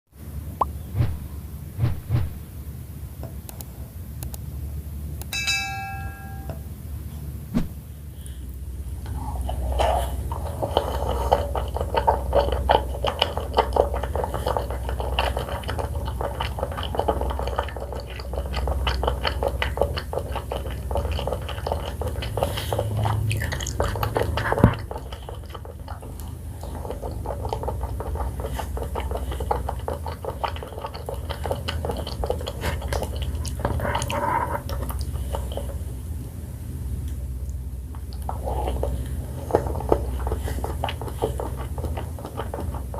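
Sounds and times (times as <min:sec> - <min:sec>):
chewing and wet mouth sounds: 0:09.4 - 0:36.4, 0:37.0 - 0:42.9.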